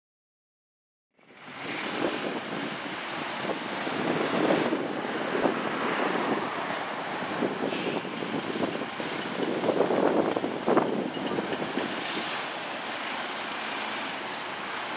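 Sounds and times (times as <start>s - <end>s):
street traffic rushing: 1.2s - 14.9s
wind buffeting microphone: 1.6s - 13.0s.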